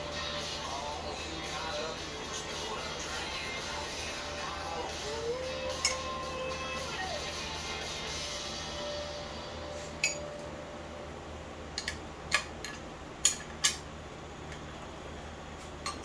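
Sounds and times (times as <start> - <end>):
metal tools clinking: 5.8 - 6.2, 10.0 - 10.3.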